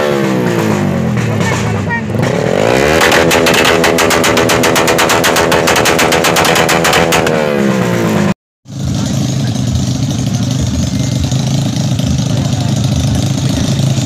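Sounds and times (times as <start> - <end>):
motorcycle engine revving: 0.0 - 14.0
low engine rumble: 8.7 - 14.0.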